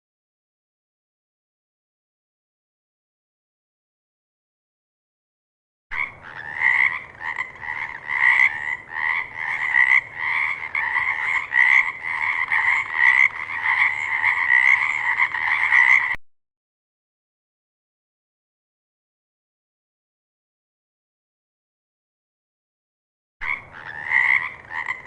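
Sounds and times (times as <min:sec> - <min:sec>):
frog croaking: 0:05.9 - 0:16.2, 0:23.4 - 0:25.0.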